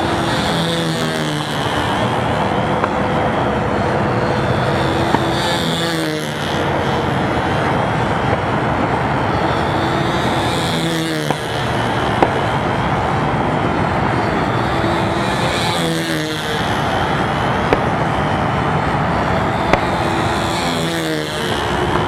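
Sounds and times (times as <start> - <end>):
model airplane engine running: 0.0 - 22.0.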